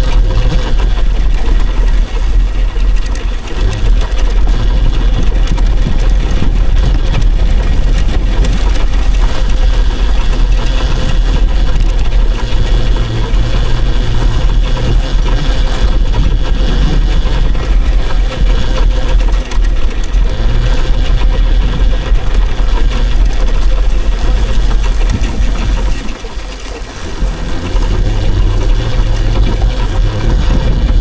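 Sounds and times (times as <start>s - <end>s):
faint motor whine: 0.0s - 31.0s
wind buffeting microphone: 0.0s - 31.0s.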